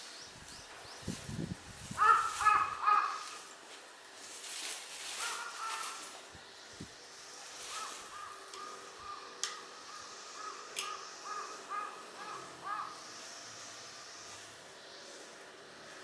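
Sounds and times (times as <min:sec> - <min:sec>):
crow cawing: 0:02.0 - 0:03.5, 0:05.2 - 0:06.0, 0:07.7 - 0:13.0.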